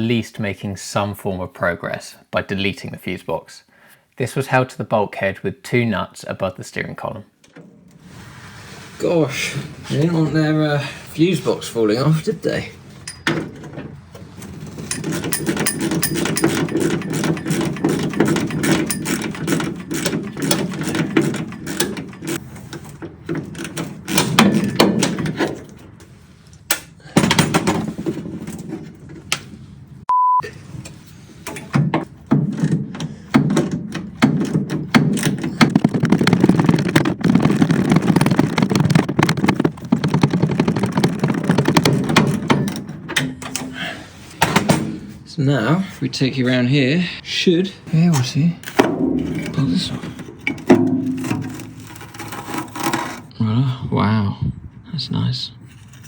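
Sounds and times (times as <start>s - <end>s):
hand tools clicking and rattling: 12.9s - 29.4s, 31.5s - 43.9s, 48.6s - 53.3s
censor bleep tone: 30.1s - 30.5s.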